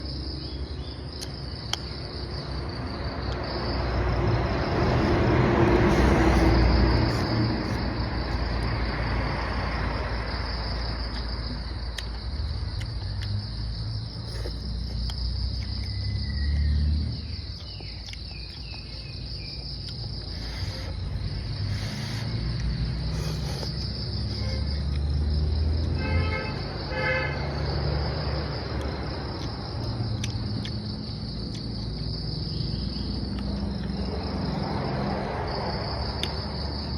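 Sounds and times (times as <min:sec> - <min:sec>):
insects chirring: 0:00.0 - 0:36.9.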